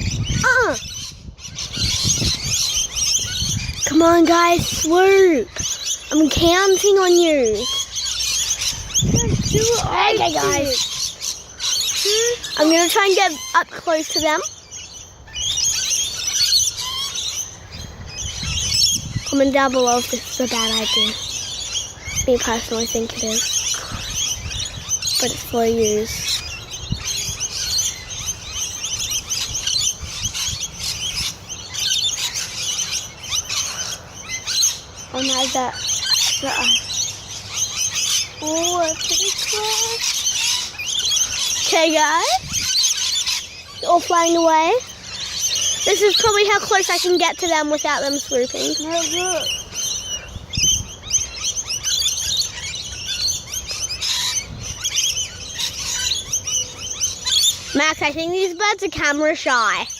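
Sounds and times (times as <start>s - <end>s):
flock of lorikeets calling: 0.0s - 59.9s.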